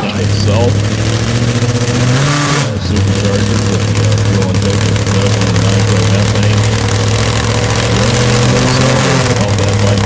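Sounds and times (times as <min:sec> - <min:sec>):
motorcycle engine running loudly: 0:00.0 - 0:10.0.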